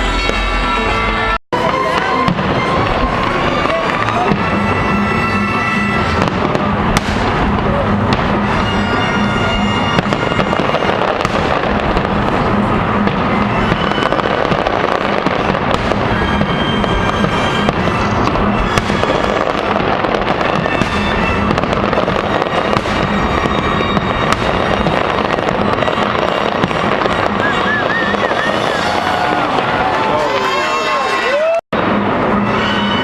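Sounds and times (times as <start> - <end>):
fireworks bangs and crackling: 0.0 - 33.0
music playing: 0.0 - 33.0.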